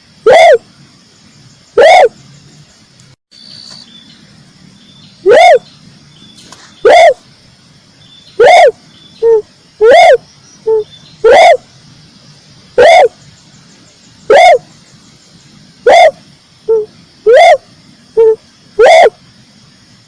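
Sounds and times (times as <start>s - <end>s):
dove cooing: 0.2s - 0.6s, 1.8s - 2.2s, 5.3s - 5.7s, 6.8s - 7.2s, 8.4s - 11.6s, 12.8s - 13.2s, 14.3s - 14.7s, 15.8s - 19.2s.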